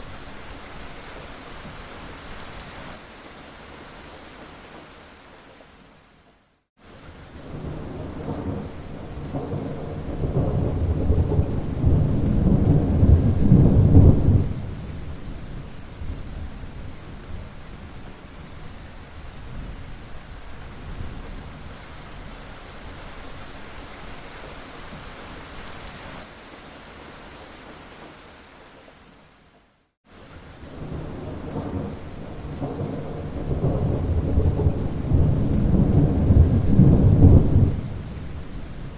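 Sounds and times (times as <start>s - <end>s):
steady rain: 0.0s - 38.9s
rumble of thunder: 7.4s - 18.0s, 30.7s - 38.9s.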